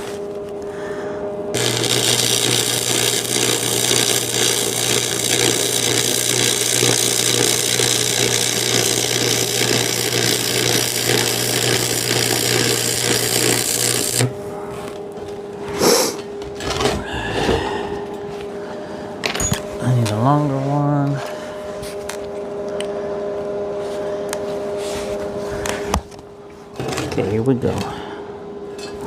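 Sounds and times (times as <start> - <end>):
low electrical buzz: 0.0 - 29.0
welding arc crackling and sizzling: 1.5 - 14.4.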